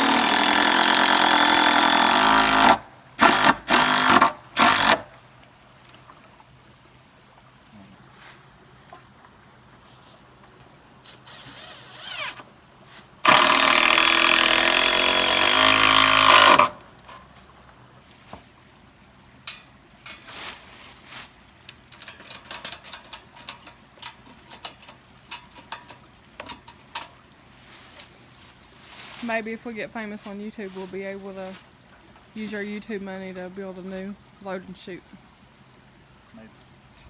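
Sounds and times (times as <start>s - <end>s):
cordless drill driving fastener: 0.0s - 5.1s, 11.2s - 12.4s, 13.2s - 16.8s
clicks and knocks of handling: 19.5s - 20.3s, 21.6s - 27.3s.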